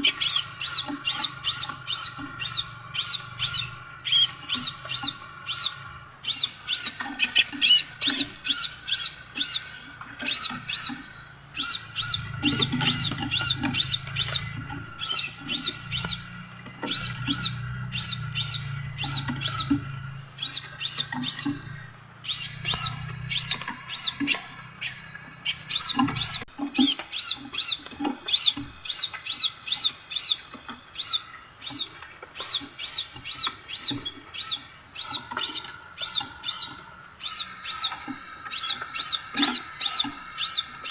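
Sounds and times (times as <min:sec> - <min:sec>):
bird chirping high notes: 0:00.0 - 0:40.9.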